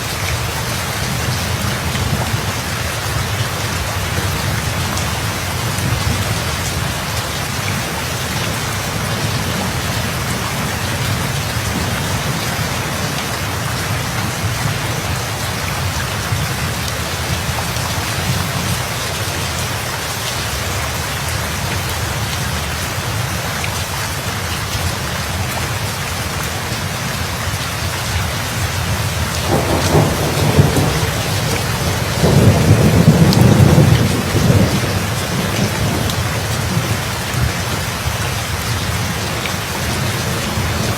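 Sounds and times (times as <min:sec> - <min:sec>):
heavy rain falling: 0:00.0 - 0:40.9
rolling thunderclap: 0:29.0 - 0:38.0.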